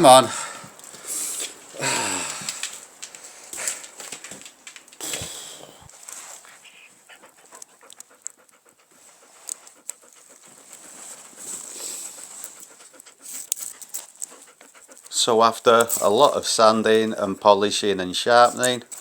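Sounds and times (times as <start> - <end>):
dog panting: 5.9 - 19.0.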